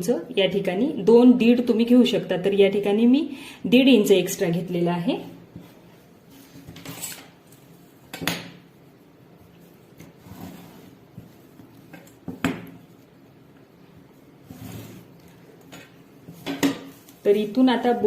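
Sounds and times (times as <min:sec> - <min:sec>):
soft fabric rustling: 0:12.8 - 0:18.0.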